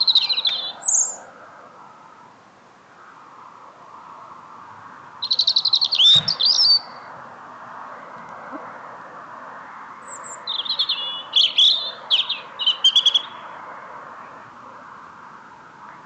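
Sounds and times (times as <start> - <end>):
songbird chirping and trilling: 0.0 - 1.3, 5.2 - 7.1, 10.0 - 13.6
steady background hiss: 0.0 - 16.0.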